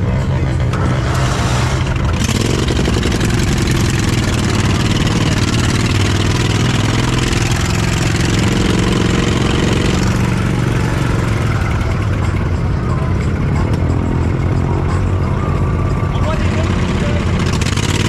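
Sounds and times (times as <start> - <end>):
small mower engine running under load: 0.0 - 14.4.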